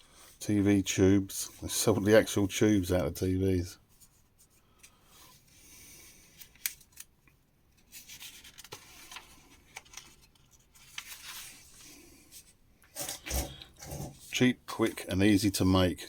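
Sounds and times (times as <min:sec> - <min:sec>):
magazine pages turning: 0:07.8 - 0:14.4.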